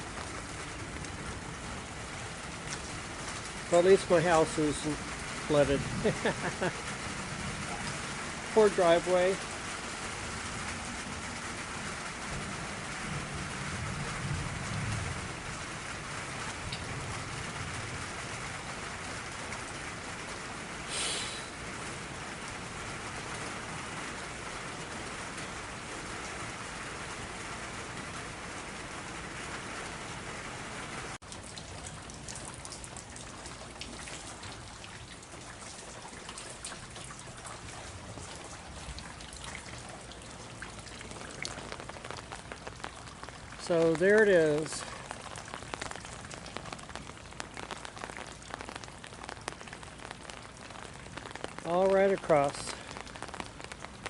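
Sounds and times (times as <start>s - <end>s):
heavy rain pouring: 0.0s - 54.0s
raindrops pattering close by: 0.0s - 54.0s.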